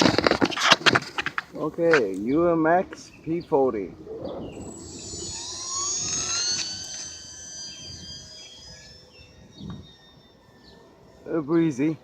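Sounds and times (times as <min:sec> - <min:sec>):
model plane motor whine: 0:04.4 - 0:11.4.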